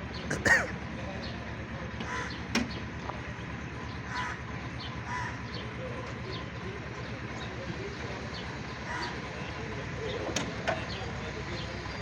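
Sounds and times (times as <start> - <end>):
engine idling: 0.0 - 12.0
crow cawing: 2.1 - 2.3, 4.1 - 4.4, 5.1 - 5.4.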